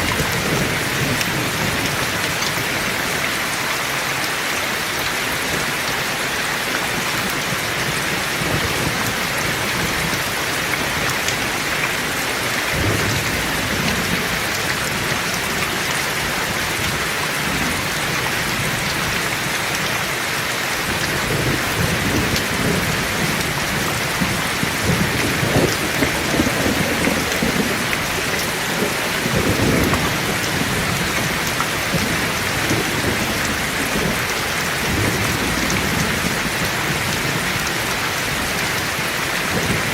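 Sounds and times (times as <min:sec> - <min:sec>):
heavy rain: 0:00.0 - 0:39.9
thunder rumbling: 0:08.2 - 0:19.3, 0:20.8 - 0:38.4.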